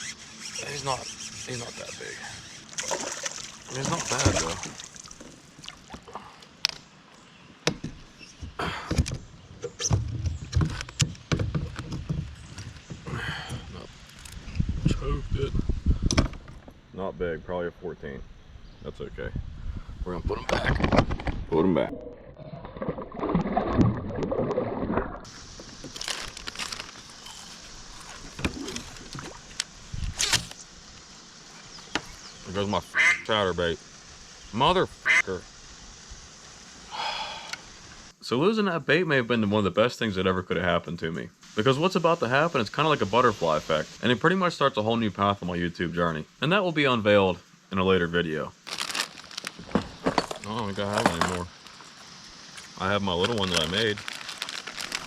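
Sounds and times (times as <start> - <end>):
water sloshing around kayak: 0.1 - 6.1, 27.4 - 29.6
knocks and thuds on kayak: 9.8 - 13.8.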